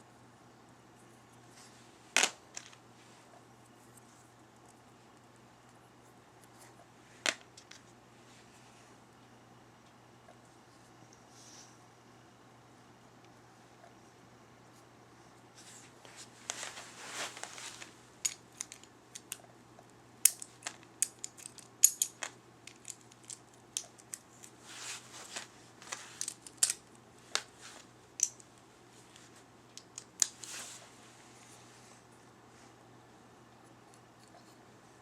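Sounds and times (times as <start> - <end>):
clicks of small hard pieces: 18.2 - 19.4, 20.2 - 24.6, 26.2 - 27.5, 28.2 - 28.5, 29.7 - 30.4.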